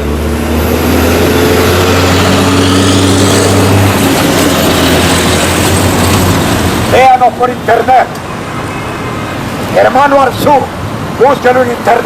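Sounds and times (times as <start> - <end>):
vehicle engine droning: 0.0 - 8.5
traffic noise: 0.0 - 12.0.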